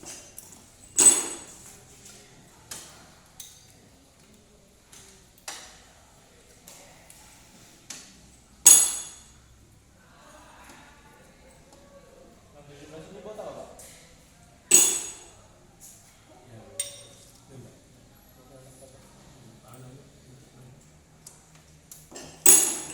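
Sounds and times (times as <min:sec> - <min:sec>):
metal tools clinking on workbench: 0:00.0 - 0:01.7, 0:08.7 - 0:09.4, 0:14.7 - 0:15.3, 0:16.8 - 0:17.4, 0:22.1 - 0:22.9.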